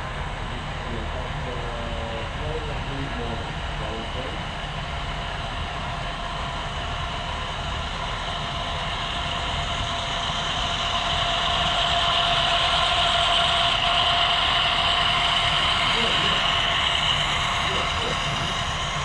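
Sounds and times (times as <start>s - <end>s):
model train whining: 5.2s - 19.0s.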